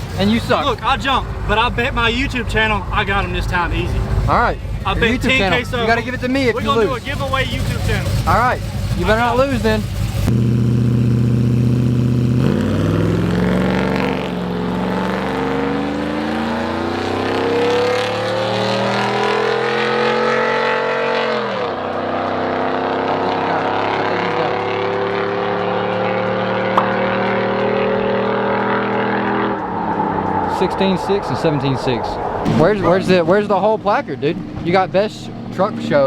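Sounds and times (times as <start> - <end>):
racing engine running hard: 0.0 - 36.0.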